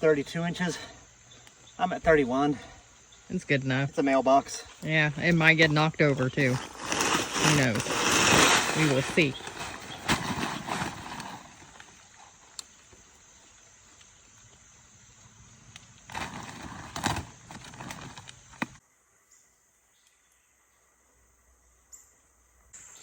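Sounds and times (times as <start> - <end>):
faint outdoor background noise: 0.0 - 23.0
handling noise: 4.8 - 12.0, 15.8 - 18.8.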